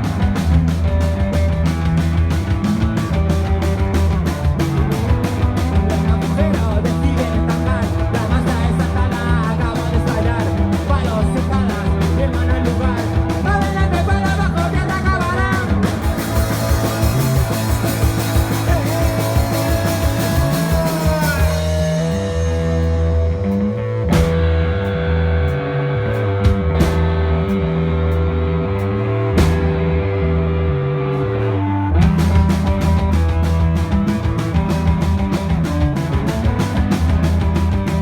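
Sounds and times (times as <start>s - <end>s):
drum beat: 0.0s - 21.9s, 24.1s - 24.5s, 26.5s - 27.2s, 29.4s - 29.9s, 32.0s - 38.0s
bass guitar: 0.0s - 38.0s
electric guitar: 0.0s - 38.0s.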